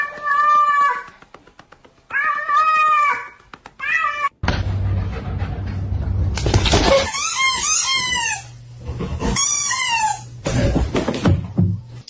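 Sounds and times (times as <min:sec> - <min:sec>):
steady low rumbling: 0:04.4 - 0:06.7.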